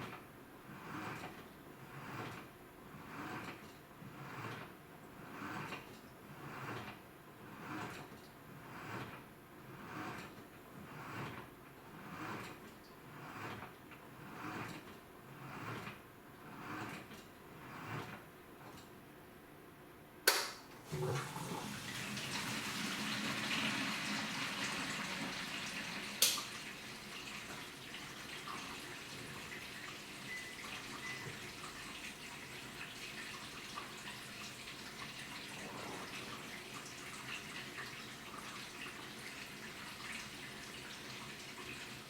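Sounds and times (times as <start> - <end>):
sharp click: 20.3 - 20.7
washing machine sloshing: 20.7 - 42.0
water pouring into tub: 20.8 - 42.0.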